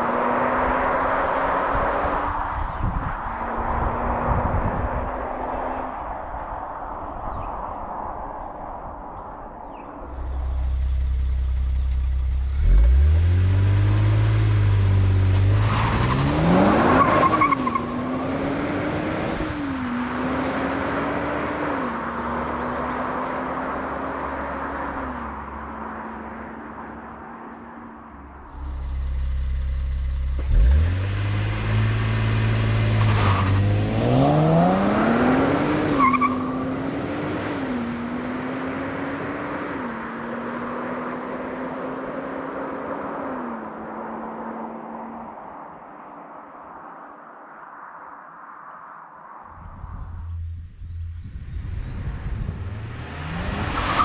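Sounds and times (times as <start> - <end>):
car engine accelerating hard: 10.2 - 26.8, 28.5 - 44.9.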